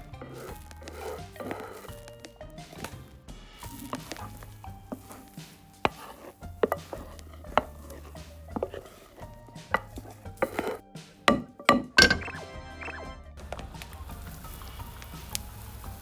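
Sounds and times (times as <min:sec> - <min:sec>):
utensils tapping a cutting board: 0:00.0 - 0:03.1, 0:03.7 - 0:12.2
soft background music: 0:00.0 - 0:16.0.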